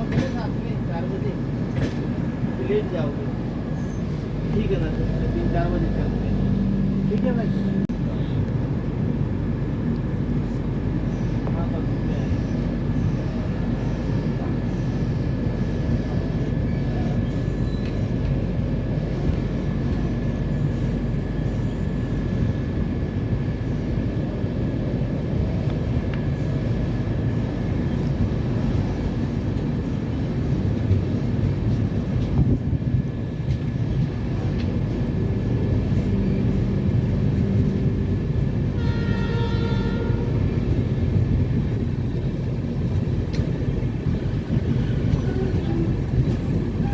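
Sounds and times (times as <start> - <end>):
train rumbling on track: 0.0 - 46.9
train horn: 38.7 - 40.5.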